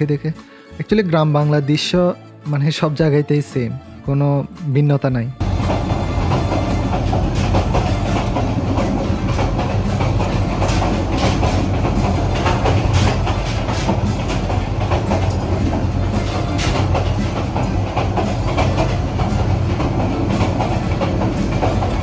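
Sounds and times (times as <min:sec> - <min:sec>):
train rumbling: 0:05.4 - 0:22.0
wheels clattering over rails: 0:05.4 - 0:22.0.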